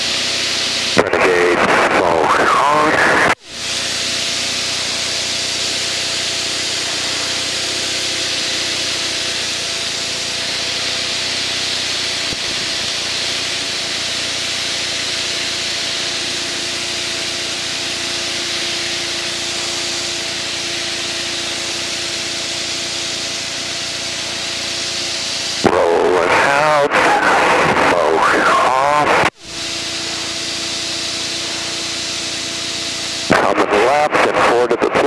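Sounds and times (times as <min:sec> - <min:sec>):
aircraft engine drone: 0:00.0 - 0:35.0
airflow hiss: 0:02.2 - 0:25.6, 0:26.2 - 0:33.9.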